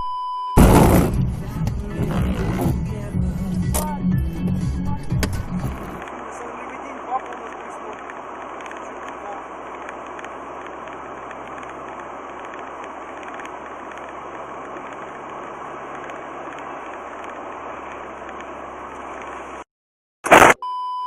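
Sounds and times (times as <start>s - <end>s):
brief loud burst: 0.6s - 1.2s, 20.3s - 20.6s
car road and engine noise: 0.6s - 19.7s.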